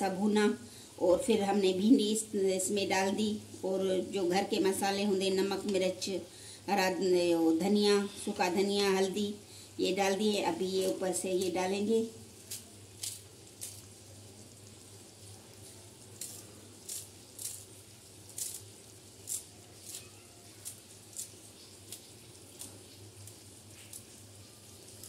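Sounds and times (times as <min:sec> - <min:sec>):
curry sizzling in a pan: 0:00.0 - 0:25.0
sharp pops and crackles: 0:12.4 - 0:14.8, 0:15.5 - 0:24.3.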